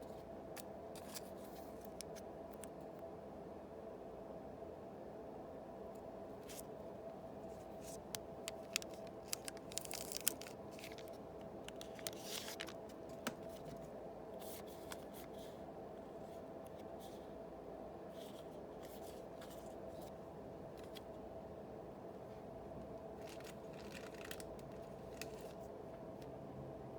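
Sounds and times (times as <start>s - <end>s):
faint steady hum: 0.0s - 26.9s
wrappers crinkling and tearing: 7.7s - 13.7s, 23.2s - 25.7s.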